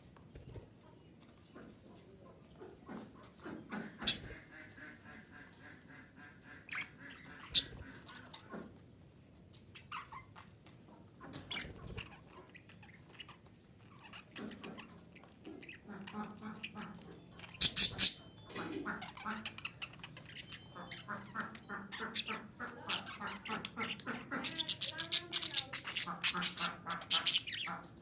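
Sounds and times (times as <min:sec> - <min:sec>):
budgerigar chattering and warbling: 0:03.6 - 0:08.5, 0:11.3 - 0:28.0
loud budgerigar chirps: 0:04.0 - 0:04.4, 0:06.7 - 0:08.3, 0:15.7 - 0:27.9.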